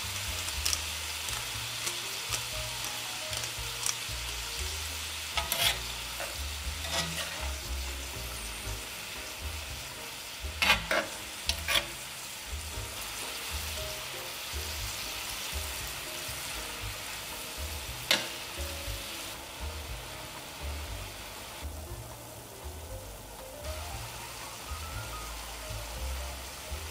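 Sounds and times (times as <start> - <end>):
meat sizzling in a pot: 0.0 - 26.9
utensil stirring and scraping: 5.3 - 8.0, 10.6 - 12.1.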